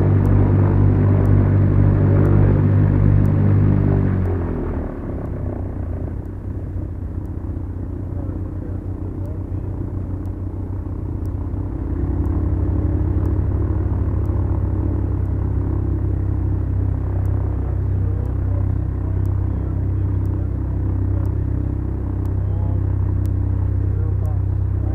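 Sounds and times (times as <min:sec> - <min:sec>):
airplane engines droning: 0:00.0 - 0:24.9
faint ticks: 0:01.2 - 0:01.4, 0:03.2 - 0:03.4, 0:06.1 - 0:08.4, 0:09.2 - 0:24.9.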